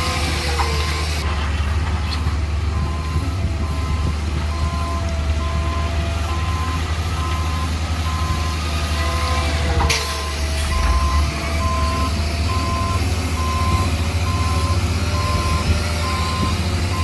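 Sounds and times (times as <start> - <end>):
diesel machine rumbling: 0.0 - 17.0
reversing alarm beeps: 2.8 - 9.4, 10.0 - 17.0.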